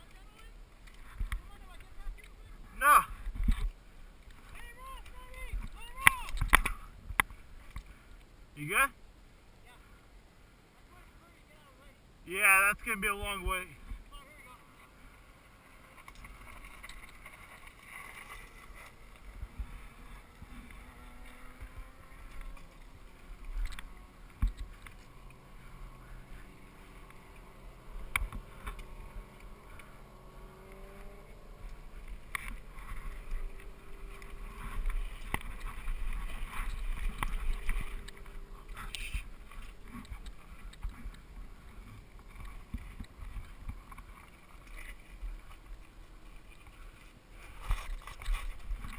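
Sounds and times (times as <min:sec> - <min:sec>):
bike tyres rumbling on dirt: 0:16.3 - 0:44.1.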